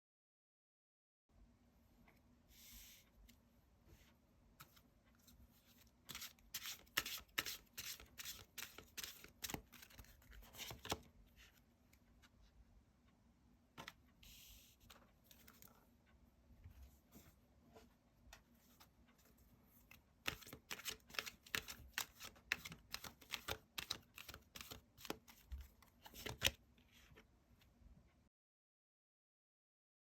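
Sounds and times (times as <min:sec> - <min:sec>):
cards being shuffled: 0:06.1 - 0:11.0, 0:20.2 - 0:26.6.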